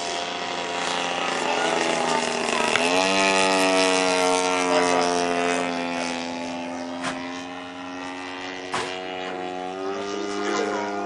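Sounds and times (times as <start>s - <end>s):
model airplane engine at high revs: 0.0s - 11.0s.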